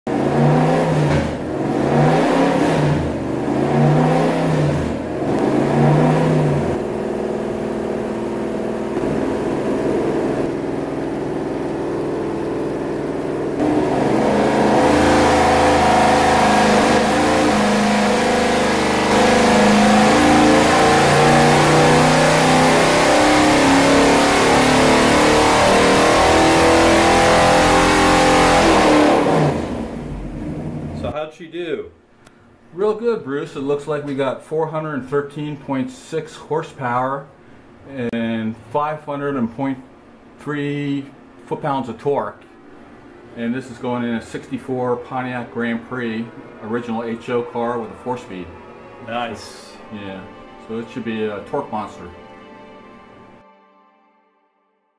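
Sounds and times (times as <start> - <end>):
engine throttle blips: 0.0 - 31.2, 37.5 - 52.1
engine running on dynamometer: 0.1 - 31.1, 42.7 - 51.8
loud engine pull with climbing pitch: 0.1 - 31.2, 42.8 - 52.0.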